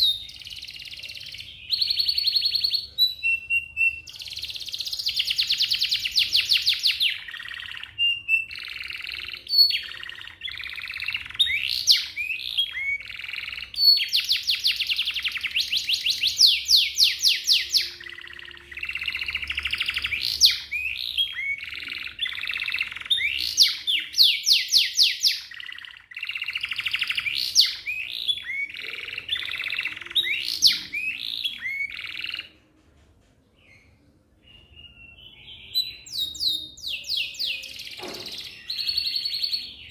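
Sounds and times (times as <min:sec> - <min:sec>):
canary singing trills: 0:00.0 - 0:32.6, 0:33.6 - 0:39.9.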